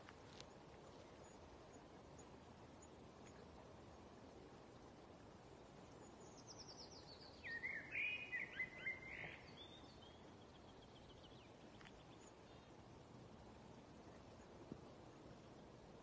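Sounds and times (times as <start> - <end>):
faint background hiss: 0.0 - 16.0
songbird trilling and chirping: 6.1 - 12.7.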